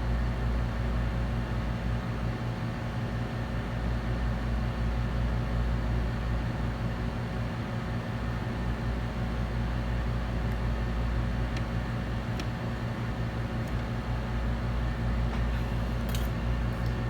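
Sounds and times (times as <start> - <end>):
hot air station blowing: 15.2 - 17.0.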